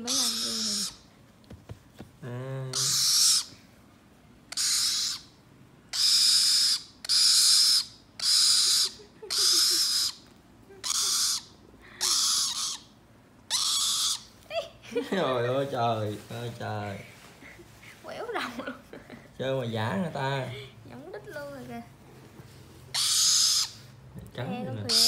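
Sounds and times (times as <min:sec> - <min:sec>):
young bird screeching: 0:00.0 - 0:01.0, 0:02.7 - 0:03.5, 0:04.5 - 0:14.4, 0:22.9 - 0:23.9, 0:24.8 - 0:25.0.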